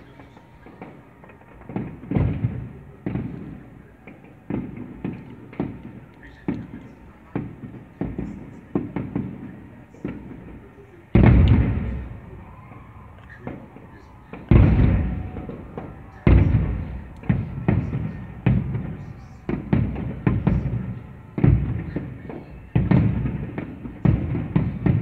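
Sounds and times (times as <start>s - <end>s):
fireworks booms and cracks: 0.0s - 25.0s
loud firework bang: 0.8s - 3.6s, 11.2s - 12.6s, 13.4s - 25.0s.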